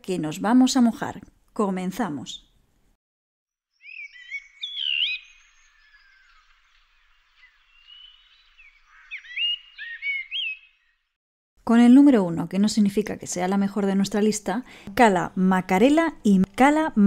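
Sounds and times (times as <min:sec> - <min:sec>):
birds chirping and whistling: 0:03.7 - 0:11.2.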